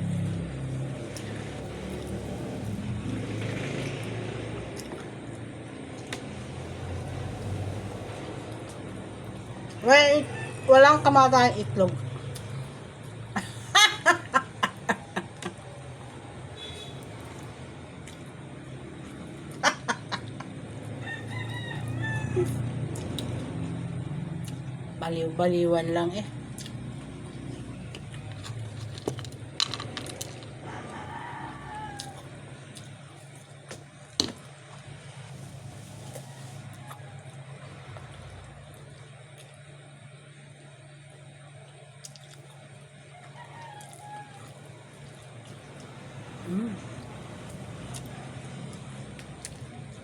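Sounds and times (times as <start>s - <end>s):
low engine drone: 0.0s - 43.2s, 44.0s - 50.0s
rooster crowing: 6.7s - 11.3s, 20.8s - 22.8s, 30.5s - 33.0s, 35.5s - 38.7s, 43.0s - 48.7s.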